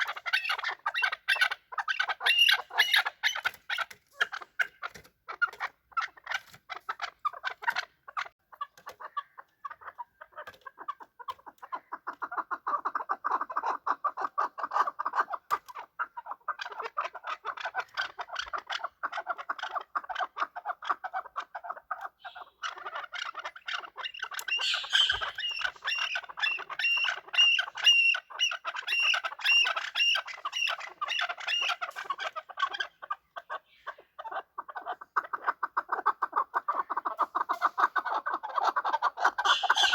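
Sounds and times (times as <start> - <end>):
higher-pitched bird call: 22.2 - 22.6, 24.5 - 28.1, 39.4 - 39.9
partridges clucking: 22.2 - 32.8, 39.3 - 39.9.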